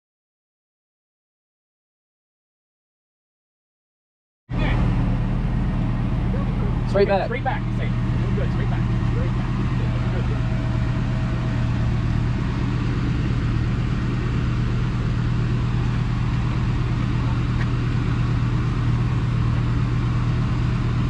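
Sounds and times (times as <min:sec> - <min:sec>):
engine running at low speed: 0:04.5 - 0:21.0.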